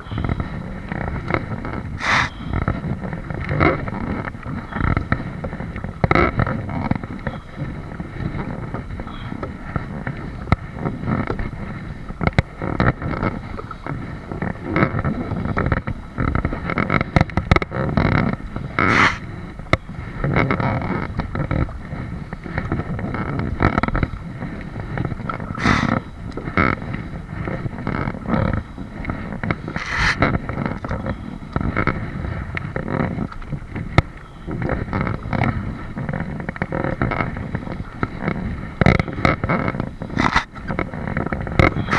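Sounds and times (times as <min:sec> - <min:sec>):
water sloshing against kayak hull: 0:23.5 - 0:31.0, 0:36.4 - 0:41.9.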